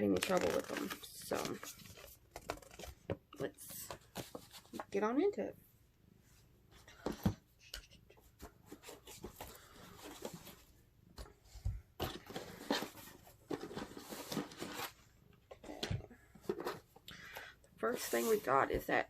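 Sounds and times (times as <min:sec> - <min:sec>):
packaging rustling and crinkling: 0:00.0 - 0:03.0.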